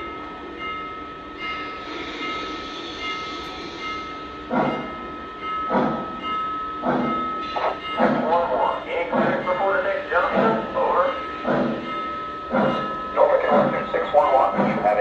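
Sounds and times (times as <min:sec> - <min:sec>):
steam locomotive chuffs: 0:00.0 - 0:15.0
steam hiss: 0:01.7 - 0:04.8.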